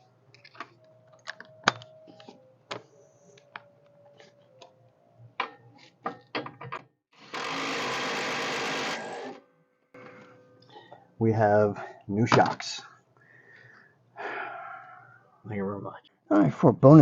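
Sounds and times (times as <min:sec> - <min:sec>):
power tool running: 0:07.2 - 0:09.4.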